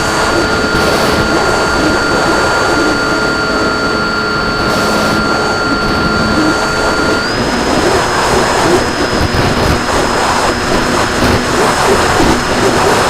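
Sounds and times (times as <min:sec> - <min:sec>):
model plane motor whining: 0:00.0 - 0:13.0
wind rush: 0:00.0 - 0:13.0.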